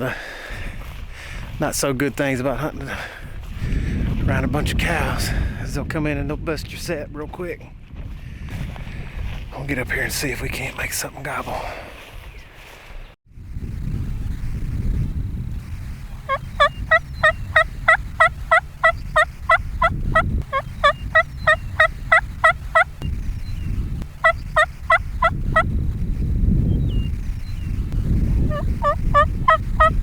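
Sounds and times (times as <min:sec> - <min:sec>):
turkey yelps: 0:16.3 - 0:19.6, 0:20.5 - 0:22.9, 0:28.5 - 0:30.0.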